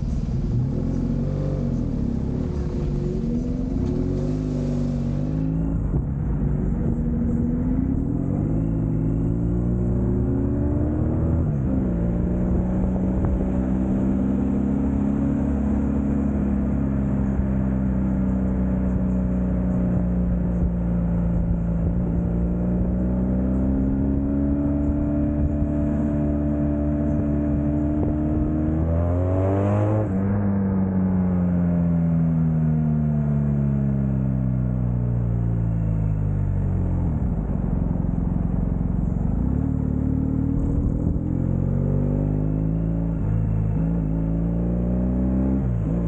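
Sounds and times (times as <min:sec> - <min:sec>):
motorcycle engine running: 0:30.1 - 0:44.4.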